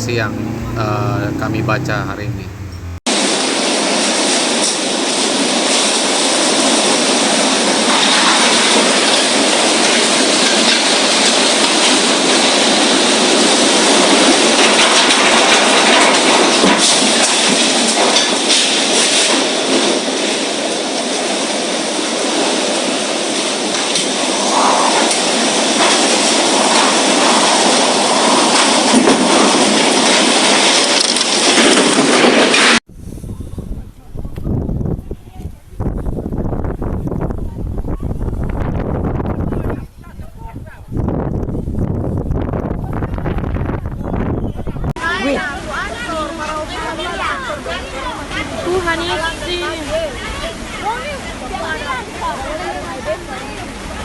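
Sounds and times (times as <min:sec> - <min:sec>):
heavy rain: 0:00.0 - 0:32.8, 0:45.0 - 0:54.0
strong storm wind rushing: 0:00.0 - 0:54.0.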